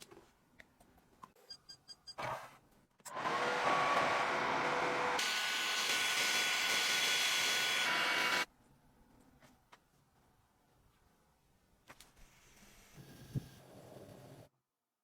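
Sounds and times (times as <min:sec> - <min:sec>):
power tool hissing: 0:03.2 - 0:08.5.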